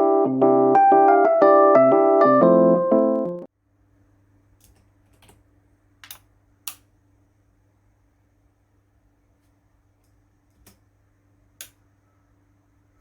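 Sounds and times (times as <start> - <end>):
piano music: 0.0 - 3.5
faint steady hum: 3.5 - 13.0.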